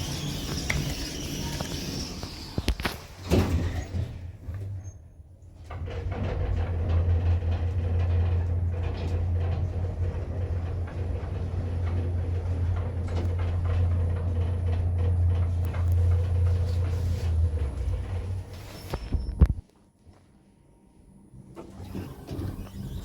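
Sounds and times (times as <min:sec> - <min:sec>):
lift rumble and hum: 0:00.0 - 0:19.6.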